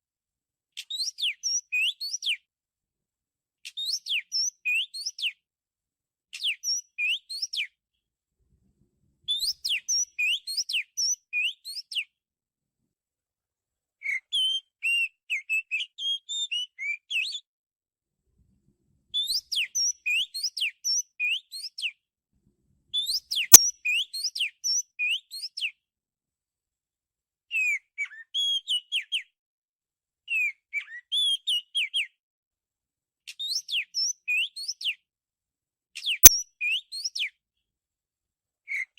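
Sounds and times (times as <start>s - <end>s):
bird singing: 36.1s - 37.3s
sharp click: 36.2s - 36.4s.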